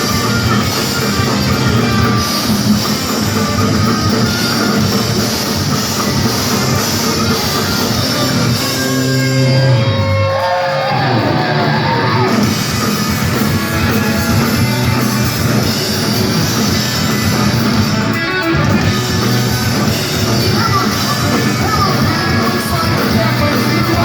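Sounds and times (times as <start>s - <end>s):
punk rock band playing live: 0.0s - 24.0s
person singing: 19.8s - 24.0s.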